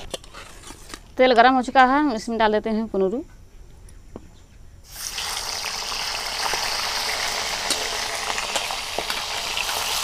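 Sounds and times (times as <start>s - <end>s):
vegetables sizzling in hot oil: 4.9s - 10.0s.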